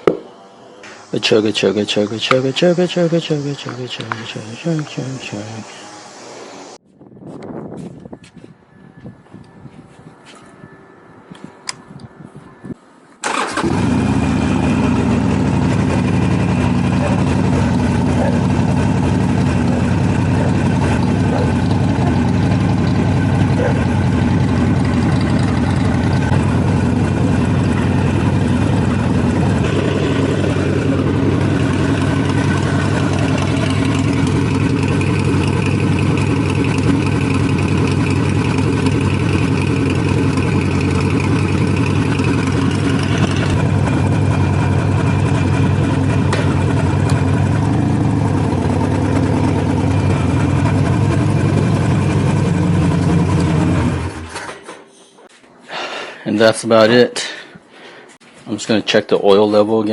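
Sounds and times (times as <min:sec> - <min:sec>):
motorcycle engine idling: 0:13.3 - 0:54.3.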